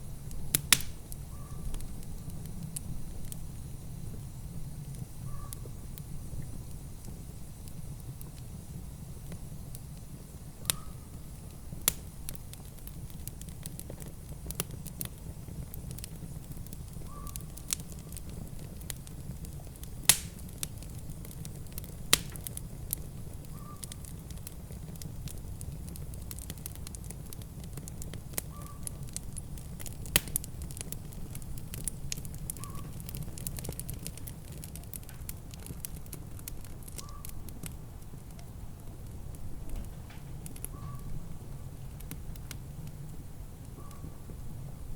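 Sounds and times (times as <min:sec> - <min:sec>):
wood fire crackling: 0:00.0 - 0:44.9
sharp pops: 0:00.5 - 0:01.0, 0:20.0 - 0:20.5, 0:22.1 - 0:22.5.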